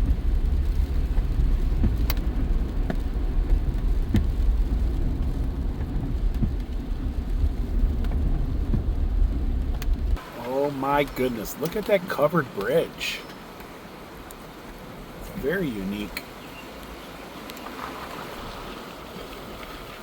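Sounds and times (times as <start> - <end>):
faint ticks: 0.0 - 8.9, 16.7 - 17.8
road and tyre noise: 0.0 - 20.0.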